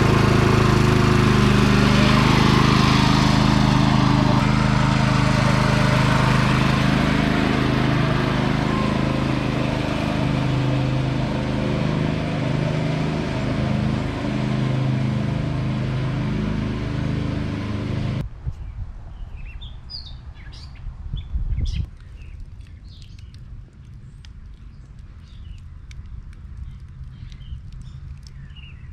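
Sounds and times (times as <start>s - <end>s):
garden tractor engine running: 0.0s - 18.2s.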